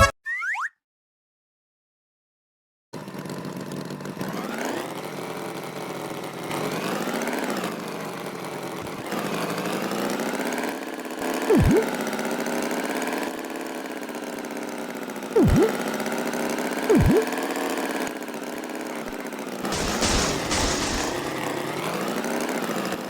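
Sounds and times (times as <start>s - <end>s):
cartoon tractor engine: 3.0s - 23.0s
swooping sound effect: 11.5s - 12.0s, 15.4s - 15.8s, 16.9s - 17.3s.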